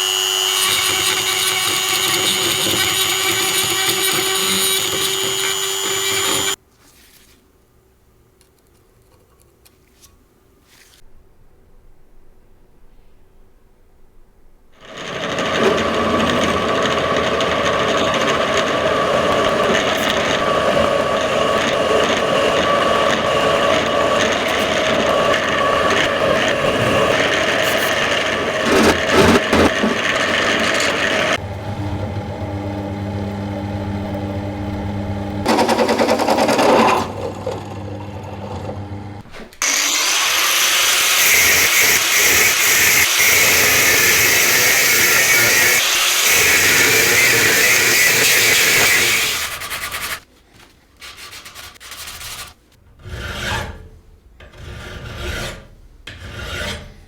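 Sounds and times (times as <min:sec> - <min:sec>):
hissing power tool: 0:00.0 - 0:06.6, 0:39.0 - 0:49.6
lower-pitched power tool: 0:00.0 - 0:06.6, 0:14.8 - 0:49.6
steady machine noise: 0:00.0 - 0:06.6, 0:14.8 - 0:36.5.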